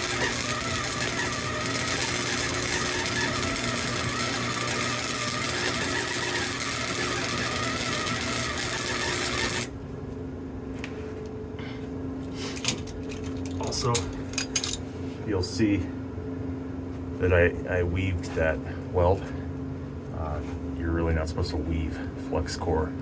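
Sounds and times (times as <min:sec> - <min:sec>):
welding arc crackling: 0:00.0 - 0:09.8
low hum: 0:00.0 - 0:14.8.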